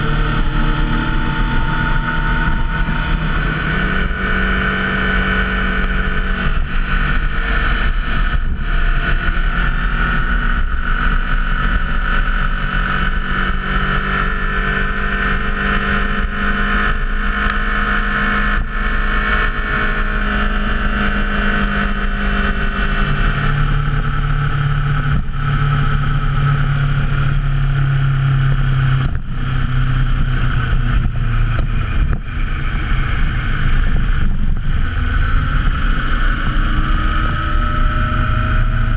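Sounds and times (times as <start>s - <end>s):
wind rushing: 0.0s - 10.4s
motorcycle engine running: 0.0s - 38.9s.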